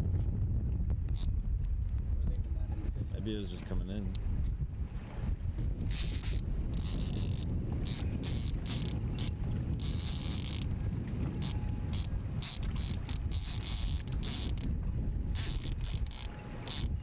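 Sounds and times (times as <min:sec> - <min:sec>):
wind rumble on microphone: 0:00.0 - 0:17.0
fishing reel buzzing: 0:05.6 - 0:10.7, 0:11.3 - 0:14.7, 0:15.3 - 0:17.0.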